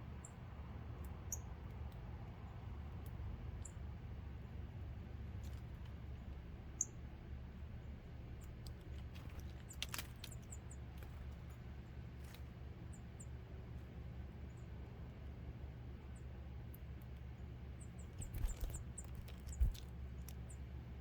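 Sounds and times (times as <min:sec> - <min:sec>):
steady low hum: 0:00.0 - 0:21.0
birds chip calls: 0:16.0 - 0:21.0.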